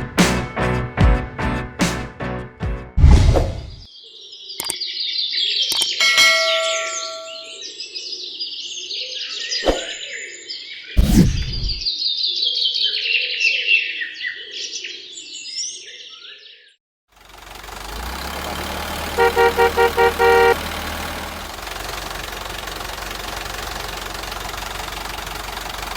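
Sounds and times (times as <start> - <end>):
low thud: 3.0 - 3.8, 11.0 - 11.9
short ringing chime: 6.0 - 7.6.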